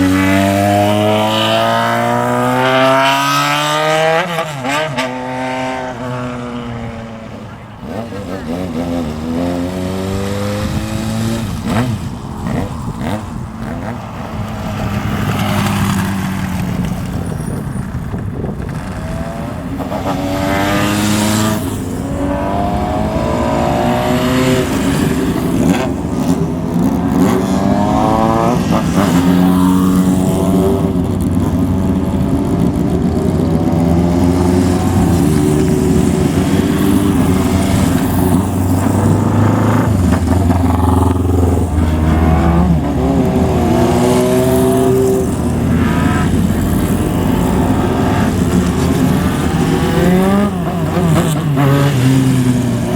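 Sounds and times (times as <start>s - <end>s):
motorcycle engines revving: 0.0s - 52.9s
engines idling: 5.9s - 52.9s.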